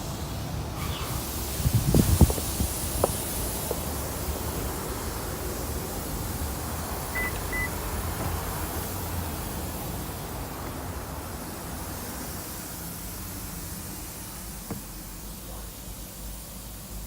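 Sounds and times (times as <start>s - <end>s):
high electronic beeps: 7.2s - 7.8s
low thuds and rumble: 7.9s - 9.4s.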